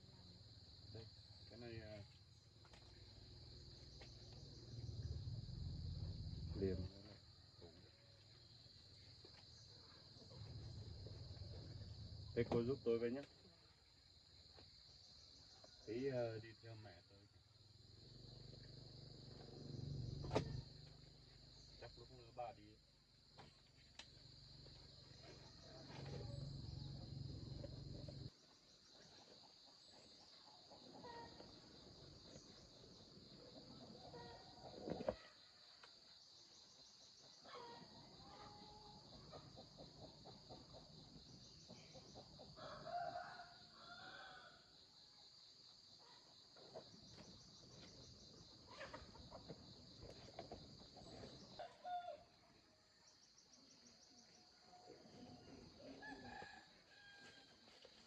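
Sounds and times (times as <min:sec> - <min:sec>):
insects chirring: 0:00.0 - 0:52.2
rooster crowing: 0:42.6 - 0:44.7, 0:56.0 - 0:57.6.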